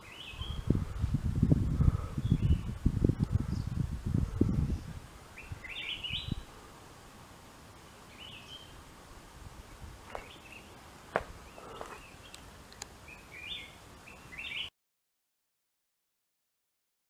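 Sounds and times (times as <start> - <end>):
small bird chirping: 5.3 - 6.5, 7.9 - 8.8.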